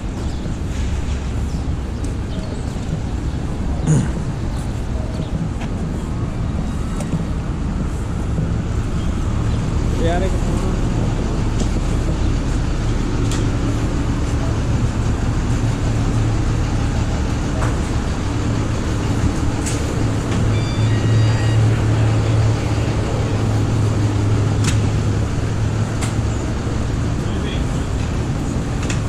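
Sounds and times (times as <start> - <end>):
vehicle rumble in motion: 0.0 - 29.0
high beeps: 20.5 - 21.7.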